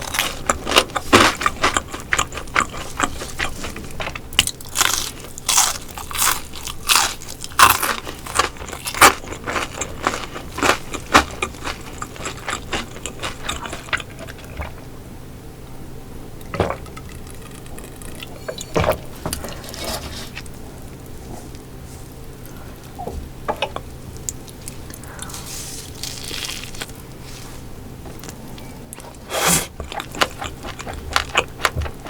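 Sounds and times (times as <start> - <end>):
crunching and chewing crispy fish: 0.0 - 15.0, 23.9 - 32.0.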